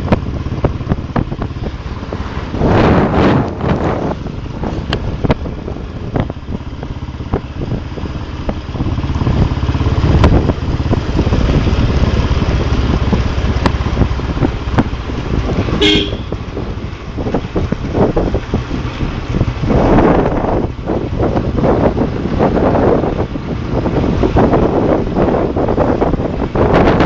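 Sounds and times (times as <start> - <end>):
motorcycle engine running: 0.0 - 27.0
short horn toot: 15.8 - 16.4.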